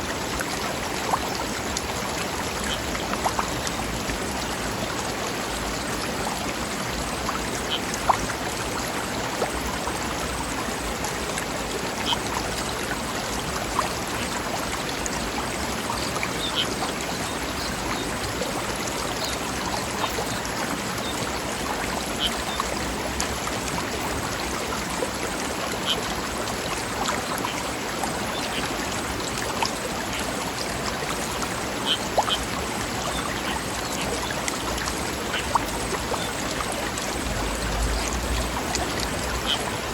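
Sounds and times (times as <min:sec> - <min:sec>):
stream running over rocks: 0:00.0 - 0:39.9
water splashes and plops: 0:00.0 - 0:39.9.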